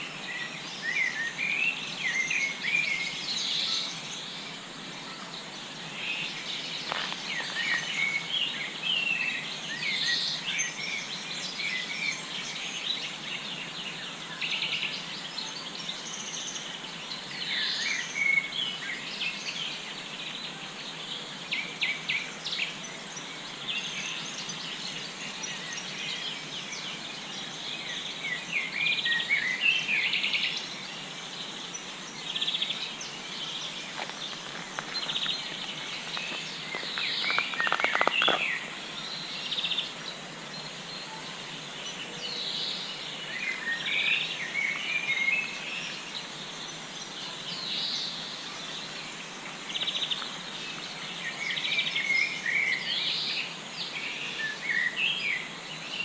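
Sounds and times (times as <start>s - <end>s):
songbirds singing: 0.0s - 56.0s
steady background hiss: 0.0s - 56.0s.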